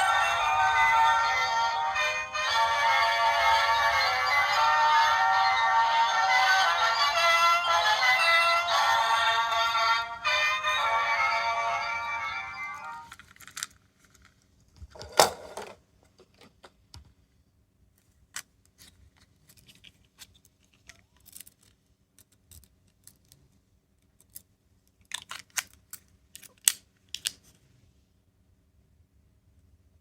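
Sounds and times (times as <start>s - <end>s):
plastic toys clicking and clattering: 13.1s - 16.8s, 18.3s - 27.4s.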